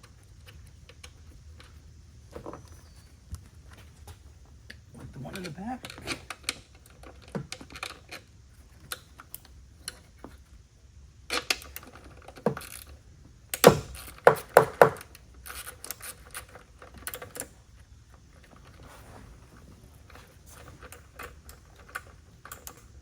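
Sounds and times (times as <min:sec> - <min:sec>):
loud knocks: 0:13.6 - 0:15.0.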